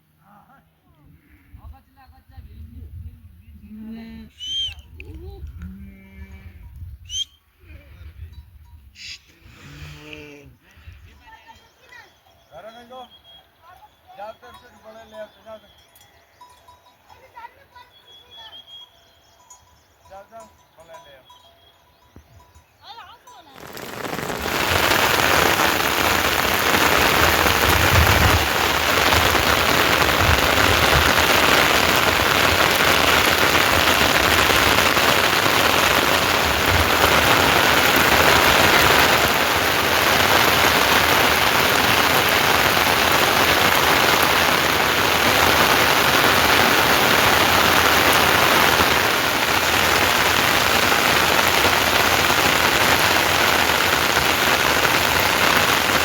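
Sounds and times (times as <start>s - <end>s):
heavy rain falling: 23.6s - 56.0s.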